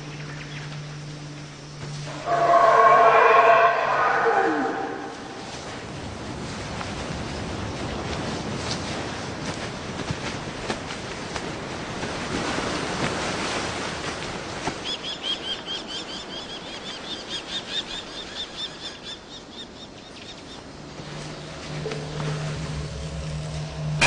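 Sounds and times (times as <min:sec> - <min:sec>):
low steady hum: 0:00.0 - 0:13.2, 0:19.8 - 0:24.0
rushing wind-like noise: 0:03.5 - 0:14.8.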